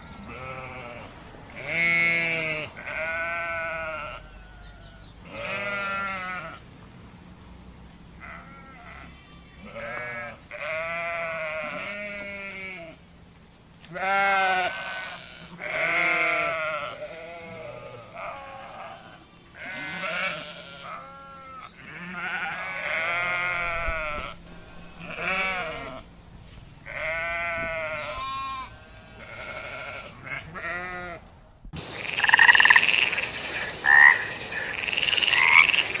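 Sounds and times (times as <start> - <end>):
goats bleating: 0.2 - 6.6, 8.2 - 13.0, 13.9 - 26.1, 26.8 - 31.2
high-pitched animal calls: 31.8 - 36.0.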